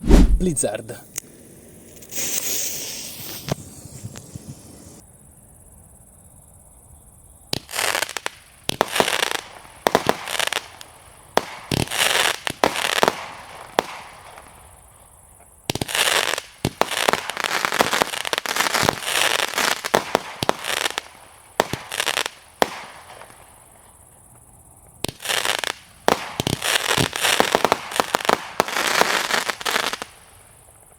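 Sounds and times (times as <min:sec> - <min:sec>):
fuse hissing: 0:00.4 - 0:05.0
firework bangs: 0:01.4 - 0:05.0, 0:25.0 - 0:30.1.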